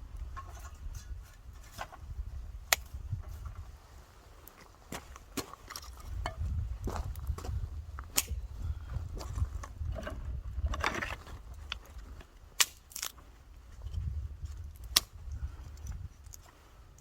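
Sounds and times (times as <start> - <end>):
steady low rumble: 5.1 - 12.5.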